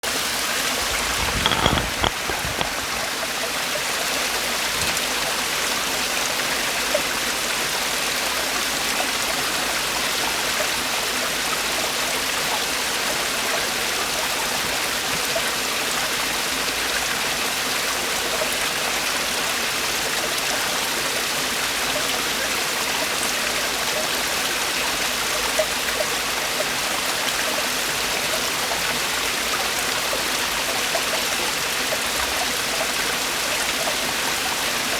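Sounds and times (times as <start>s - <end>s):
stream rushing over rocks: 0.7s - 3.3s.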